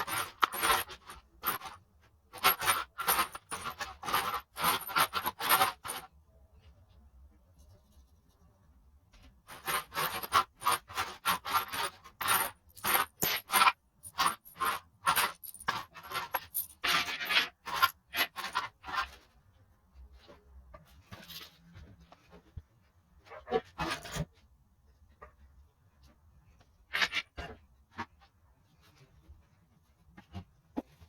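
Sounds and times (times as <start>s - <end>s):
small metal parts clinking: 0.0s - 6.1s, 9.5s - 19.1s.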